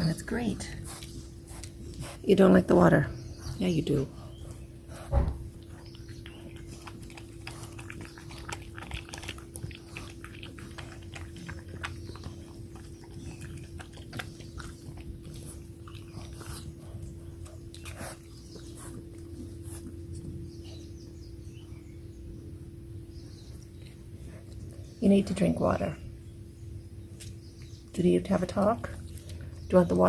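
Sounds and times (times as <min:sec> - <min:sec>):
puppy chewing food: 0:00.0 - 0:02.4, 0:03.2 - 0:21.7.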